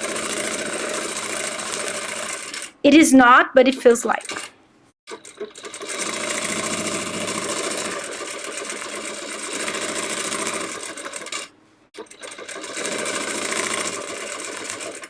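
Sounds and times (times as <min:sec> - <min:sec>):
sewing machine stitching: 0:00.0 - 0:02.8, 0:04.2 - 0:04.5, 0:05.1 - 0:15.0.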